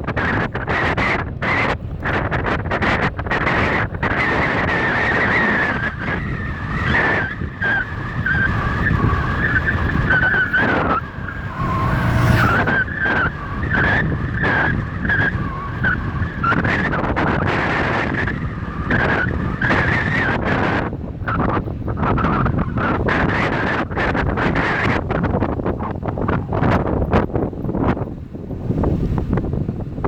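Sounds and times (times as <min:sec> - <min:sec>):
wind and tyres rumbling: 0:00.0 - 0:30.0
wavering high whine: 0:07.4 - 0:14.4.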